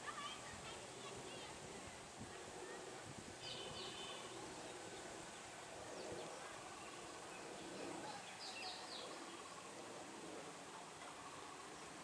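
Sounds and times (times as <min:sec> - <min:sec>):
murmur of distant voices: 0:00.0 - 0:12.0.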